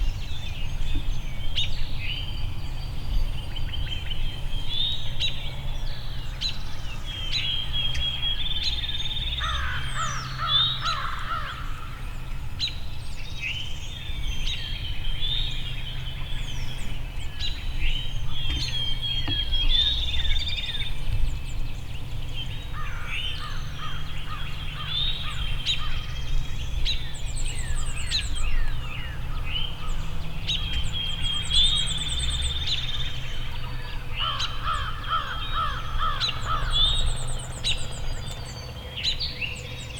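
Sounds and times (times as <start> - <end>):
songbirds singing: 0.0 - 39.9
rapid rough bird calls: 29.0 - 39.5.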